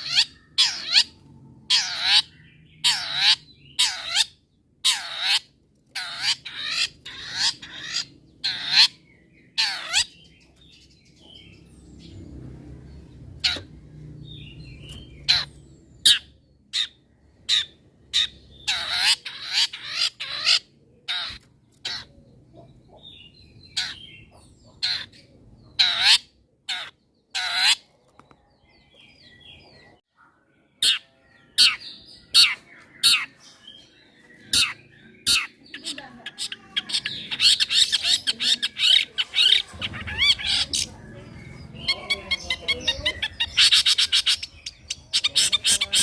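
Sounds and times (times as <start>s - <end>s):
bird rasping calls: 0.0s - 10.3s, 15.2s - 27.9s, 34.4s - 46.0s
bird harsh sharp calls: 0.0s - 12.3s, 12.9s - 46.0s
soft bird chirps: 0.0s - 46.0s.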